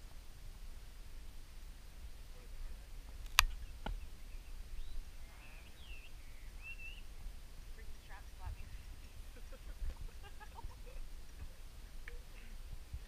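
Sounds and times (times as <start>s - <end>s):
birds chirping: 2.3s - 13.0s
sharp clicks: 3.2s - 4.0s.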